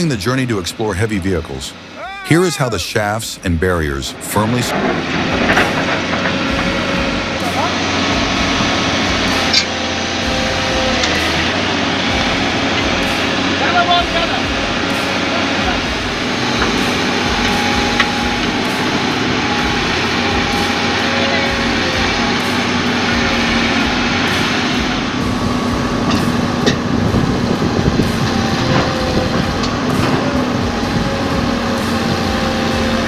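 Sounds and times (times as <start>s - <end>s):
truck engine humming: 0.0s - 33.0s.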